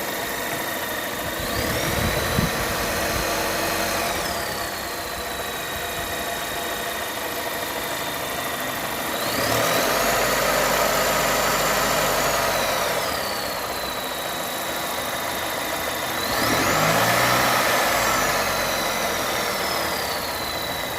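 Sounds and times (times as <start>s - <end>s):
car engine idling and revving: 0.0s - 20.9s
high-pitched engine whistle: 9.2s - 15.0s, 16.2s - 20.9s.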